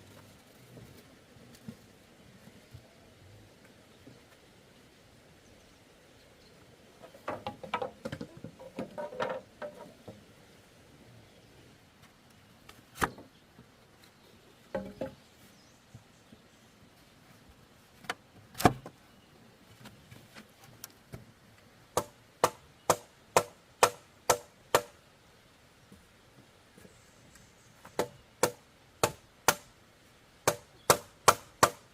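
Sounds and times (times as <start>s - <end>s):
tool striking bamboo: 22.0s - 25.0s, 27.9s - 29.7s, 30.4s - 31.9s.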